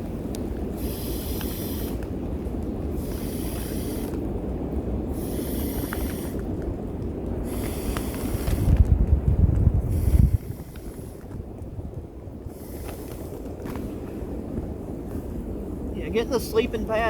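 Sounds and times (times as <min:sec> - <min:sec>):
wind buffeting microphone: 0:00.0 - 0:17.0
breath-like hiss: 0:00.6 - 0:02.2, 0:02.9 - 0:04.4, 0:05.0 - 0:06.6, 0:07.4 - 0:08.9, 0:09.8 - 0:11.4, 0:12.5 - 0:13.8.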